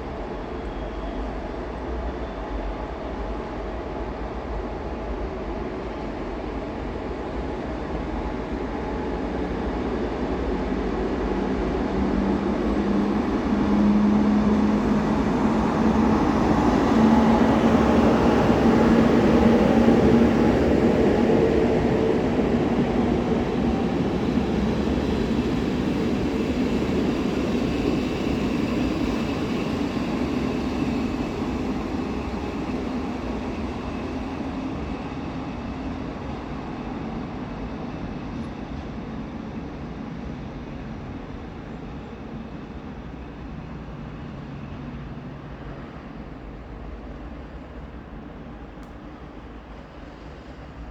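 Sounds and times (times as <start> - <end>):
electric train passing: 0.0 - 38.4.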